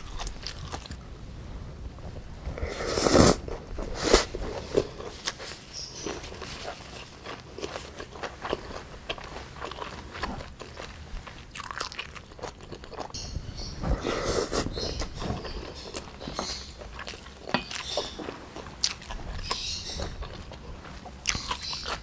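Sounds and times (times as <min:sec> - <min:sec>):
food being bitten and chewed: 0:00.0 - 0:01.0, 0:02.5 - 0:22.0.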